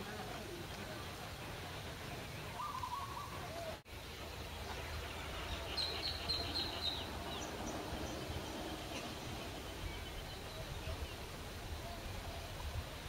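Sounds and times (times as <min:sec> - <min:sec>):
small bird chirping: 0:04.3 - 0:11.3.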